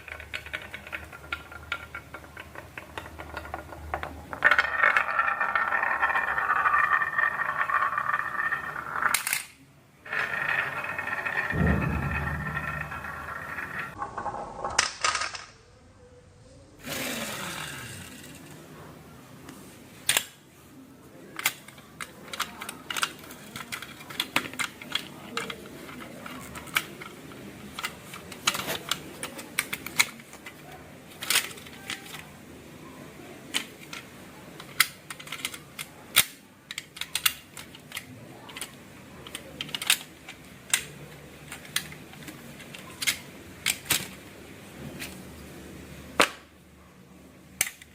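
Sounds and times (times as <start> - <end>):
marbles clicking on wooden track: 0.0 - 9.5, 10.1 - 15.4.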